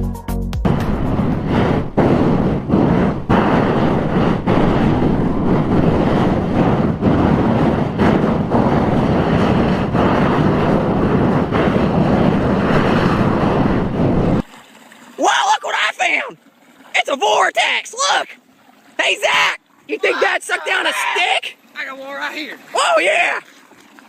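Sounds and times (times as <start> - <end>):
loud steady rushing noise: 0.6 - 14.4.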